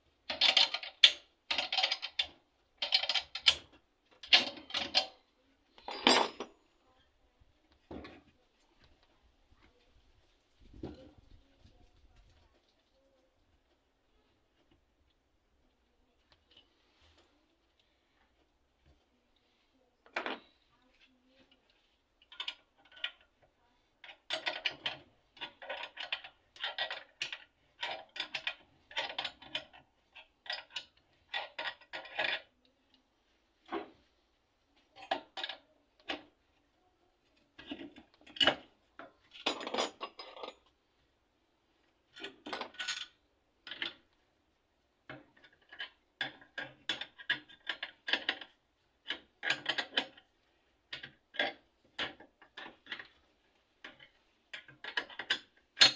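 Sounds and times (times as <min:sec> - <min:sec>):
metal tools clinking and rattling: 0:00.3 - 0:06.6, 0:39.3 - 0:40.7, 0:42.2 - 0:43.9, 0:54.6 - 0:55.9.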